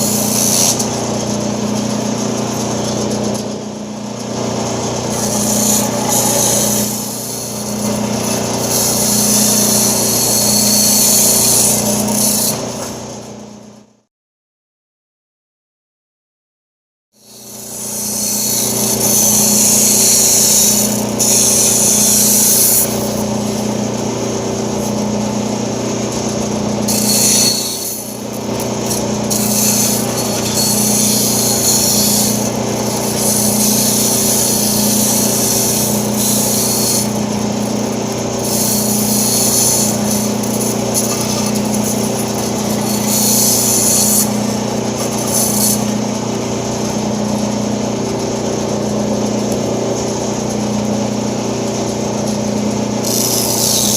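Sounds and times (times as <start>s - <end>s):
band saw motor hum: 0.0s - 14.0s, 17.2s - 53.9s.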